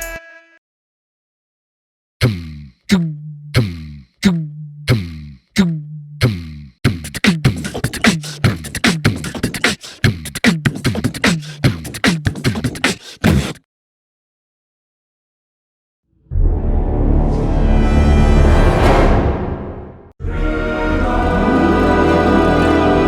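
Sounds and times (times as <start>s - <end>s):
beatbox vocal percussion: 2.2s - 13.7s.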